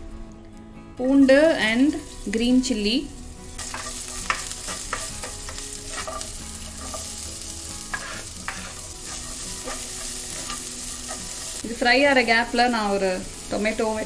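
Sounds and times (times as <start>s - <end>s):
garlic and chilli sizzling in oil: 1.0s - 14.0s
spatula tapping and scraping: 3.6s - 7.1s, 7.9s - 11.4s.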